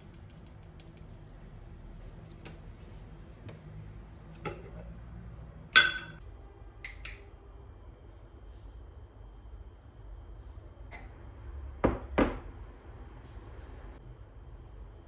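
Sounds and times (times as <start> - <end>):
dish clinking: 5.8 - 6.2
light knocks of kitchenware: 5.8 - 6.2.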